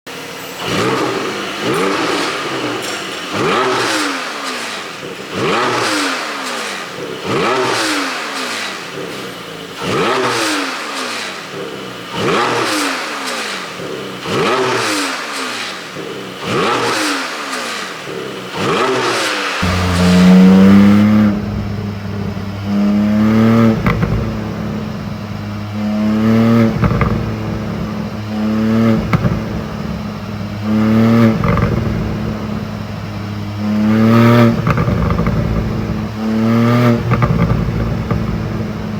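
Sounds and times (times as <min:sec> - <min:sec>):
car engine revving: 0:00.1 - 0:38.9
exhaust pops and crackles: 0:17.7 - 0:38.9.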